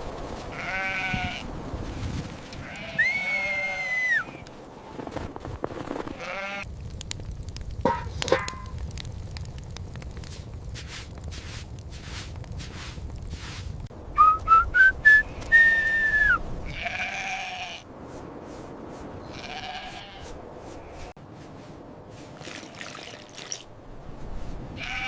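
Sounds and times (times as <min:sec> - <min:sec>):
sheep bleating: 0:02.6 - 0:04.0, 0:06.2 - 0:06.7, 0:16.7 - 0:17.8, 0:24.8 - 0:25.0
human whistling: 0:14.2 - 0:16.4.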